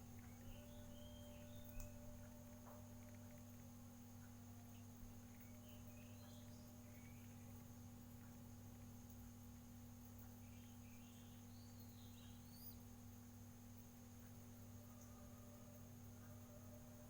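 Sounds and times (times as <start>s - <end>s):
steady low hum: 0.0s - 17.0s
faint high bird chirps: 0.2s - 2.4s, 5.2s - 7.6s, 10.3s - 12.9s.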